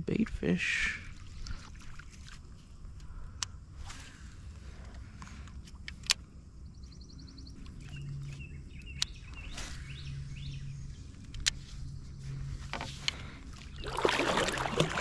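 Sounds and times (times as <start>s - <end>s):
low hum: 0.7s - 15.0s
birds chirping: 6.5s - 14.4s.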